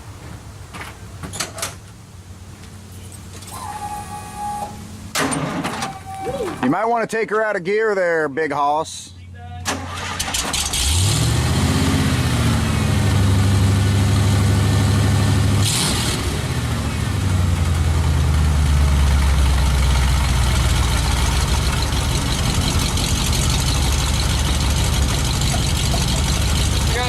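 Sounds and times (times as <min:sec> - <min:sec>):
truck engine idling with lope: 0:16.3 - 0:27.0.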